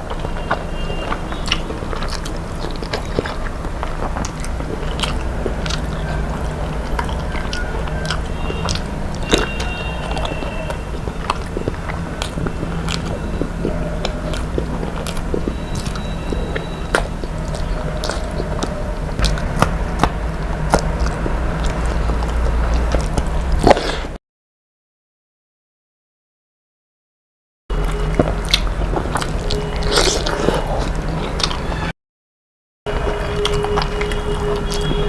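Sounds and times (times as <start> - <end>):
low hum: 0.0 - 23.7
chewing and biting food: 0.0 - 24.2, 27.7 - 31.9, 32.9 - 35.0.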